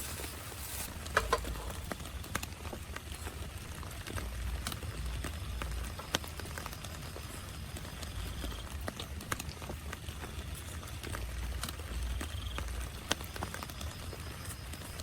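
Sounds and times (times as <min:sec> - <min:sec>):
steady hiss: 0:00.0 - 0:08.8
raindrops tapping on tent fabric: 0:00.0 - 0:15.0.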